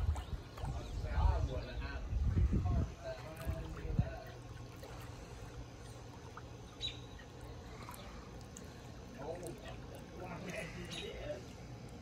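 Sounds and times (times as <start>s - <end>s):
steady low hum: 0.0s - 12.0s
faint bird chirps: 5.8s - 8.2s.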